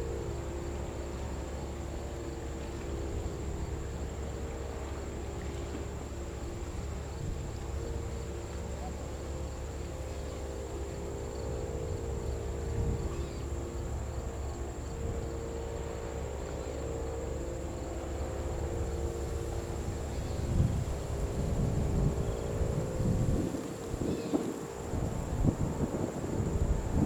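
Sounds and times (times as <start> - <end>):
crickets droning: 0.0 - 27.0
wind buffeting microphone: 11.9 - 13.2, 19.4 - 27.0.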